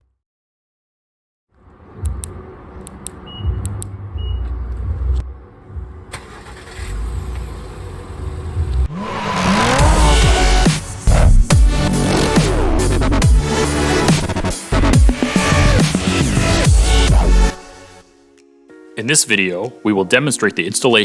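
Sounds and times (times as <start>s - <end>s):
car engine starting and running: 3.6s - 18.0s
electronic music with wobbling bass: 8.8s - 18.0s.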